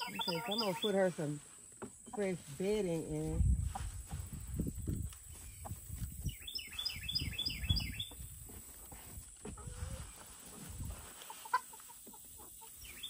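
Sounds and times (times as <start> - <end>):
bird chirping: 0.0 - 1.1, 5.3 - 8.3, 12.6 - 13.0.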